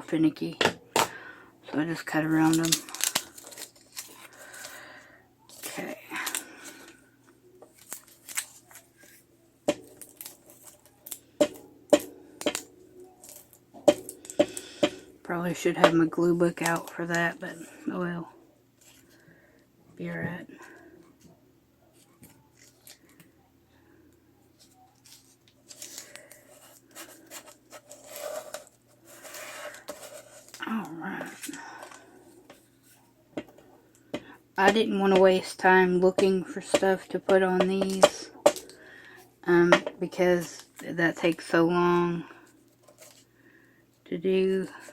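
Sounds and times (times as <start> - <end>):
paper rustling: 2.3 - 4.8, 7.6 - 14.9, 24.6 - 32.0.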